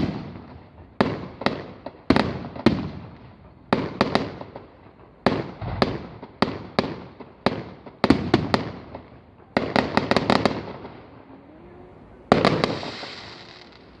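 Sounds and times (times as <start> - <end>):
fireworks bangs: 0.0 - 14.0
firework hissing tail: 10.1 - 14.0.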